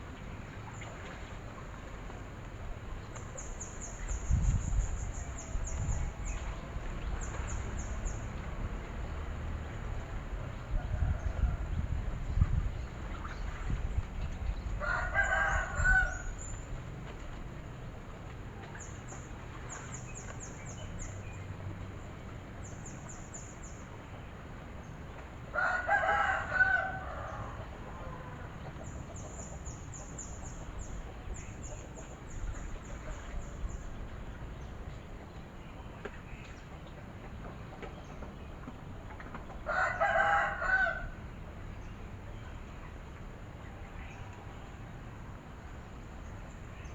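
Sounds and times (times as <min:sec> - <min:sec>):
rooster crowing: 0:14.8 - 0:16.3, 0:25.5 - 0:28.4, 0:39.7 - 0:41.2.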